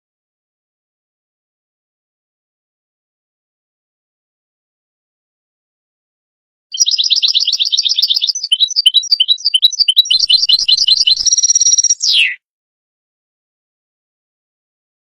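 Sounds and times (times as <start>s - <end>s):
goldfinch singing: 6.7s - 12.4s.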